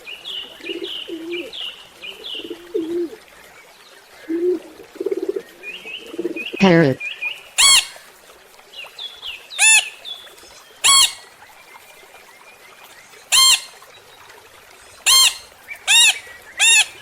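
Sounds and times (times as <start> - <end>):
small birds chirping: 0.1 - 8.1, 8.8 - 17.0
parrot squawking: 7.6 - 8.0, 9.6 - 10.0, 10.8 - 11.3, 13.3 - 13.8, 15.0 - 17.0.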